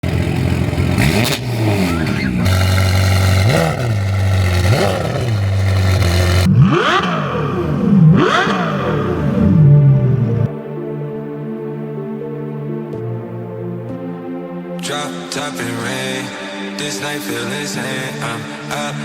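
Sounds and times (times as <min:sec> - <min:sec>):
sports car engines revving: 0:00.0 - 0:10.5.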